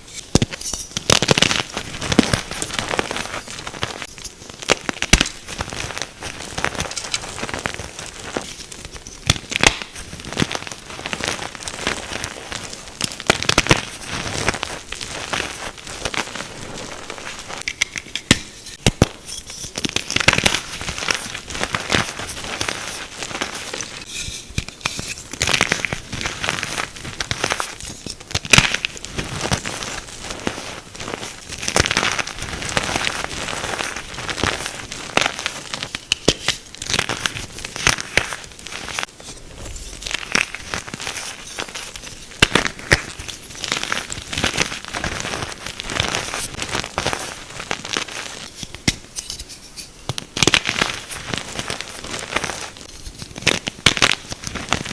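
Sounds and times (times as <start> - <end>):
chalk crushing and crunching: 0.1 - 54.9.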